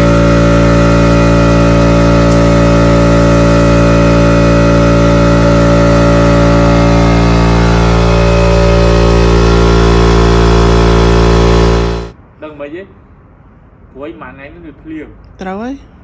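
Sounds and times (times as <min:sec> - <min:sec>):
paint-spraying machine running: 0:00.0 - 0:12.2.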